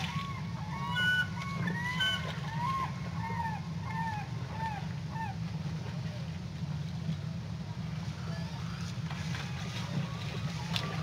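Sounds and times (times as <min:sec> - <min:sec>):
bird honking calls: 0:00.0 - 0:05.4
low background rumble: 0:00.0 - 0:11.0.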